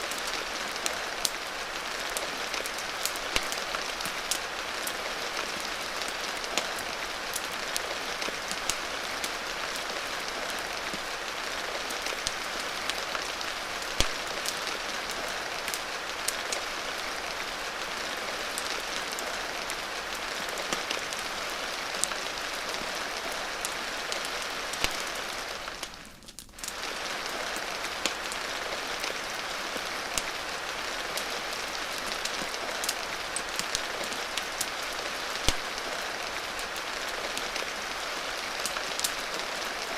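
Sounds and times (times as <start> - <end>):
rain hiss: 0.0 - 39.9
fire crackling pops: 0.1 - 5.0, 6.4 - 9.4, 11.9 - 16.6, 22.8 - 28.3, 30.0 - 30.6, 31.2 - 37.8.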